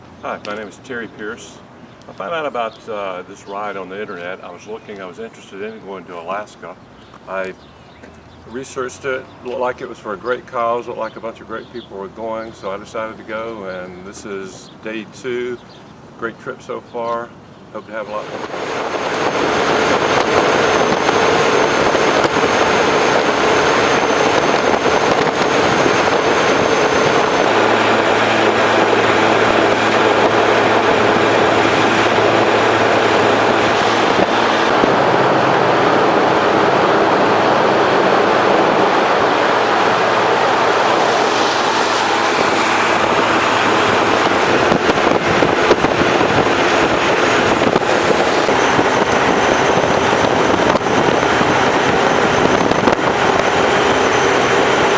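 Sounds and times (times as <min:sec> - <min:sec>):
wind and road noise: 0:00.0 - 0:54.9
low engine hum: 0:18.1 - 0:54.9.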